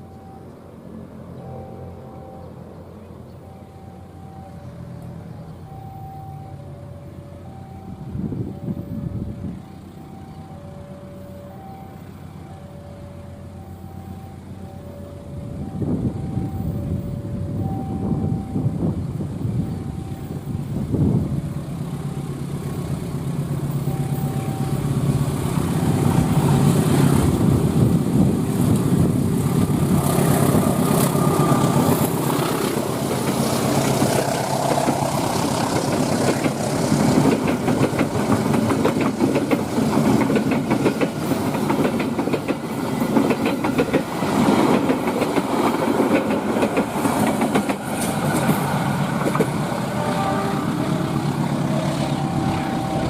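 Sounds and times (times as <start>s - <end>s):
diesel locomotive engine: 0.0s - 53.0s
train wheels clattering on rails: 25.8s - 49.8s.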